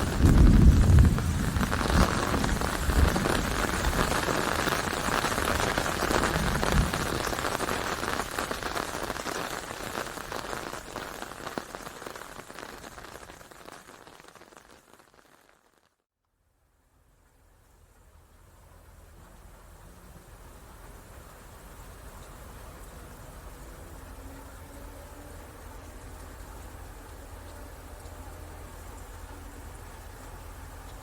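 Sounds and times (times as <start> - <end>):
low rumbles: 0.0 - 8.7
heavy rain on hard surface: 0.0 - 16.0, 16.8 - 31.0.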